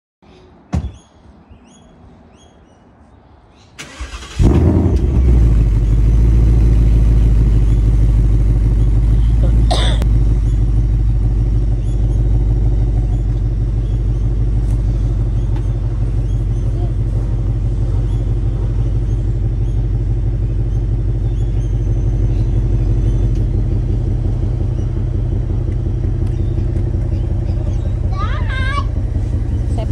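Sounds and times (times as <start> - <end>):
car engine starting and idling: 3.8 - 29.9.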